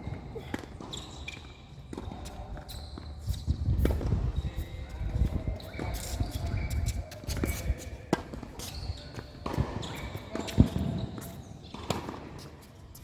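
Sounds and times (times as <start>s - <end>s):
tennis balls struck and bouncing: 8.1s - 12.4s.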